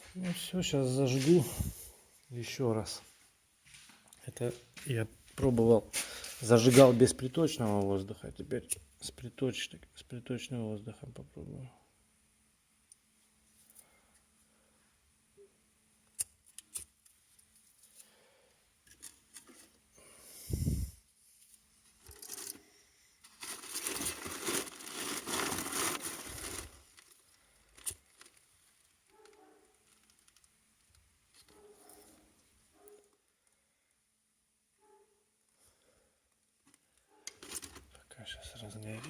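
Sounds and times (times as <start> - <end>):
paper being crumpled and torn: 23.3 - 28.5.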